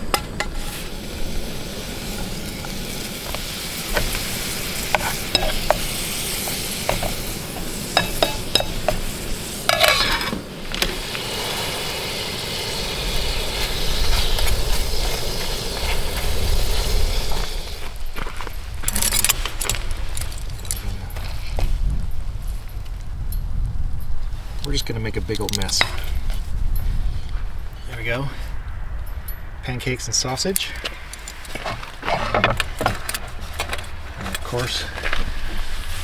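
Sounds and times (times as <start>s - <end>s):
utensil scraping a pan: 0.0s - 0.9s, 2.0s - 11.8s, 31.2s - 35.0s
food sizzling in a pan: 0.4s - 17.9s.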